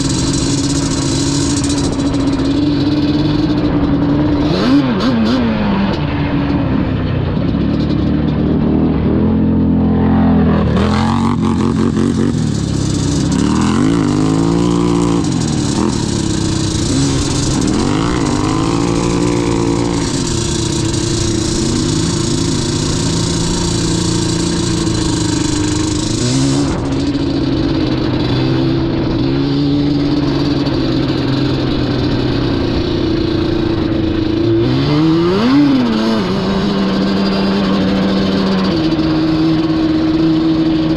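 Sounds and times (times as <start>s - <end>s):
two-stroke engine revving: 0.0s - 40.9s
steady rushing hiss: 11.3s - 27.8s.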